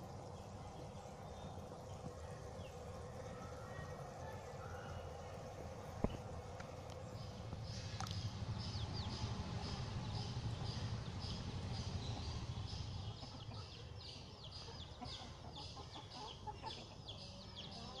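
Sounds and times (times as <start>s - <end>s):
low rumble: 5.7s - 13.4s
bird chirping: 7.1s - 18.0s.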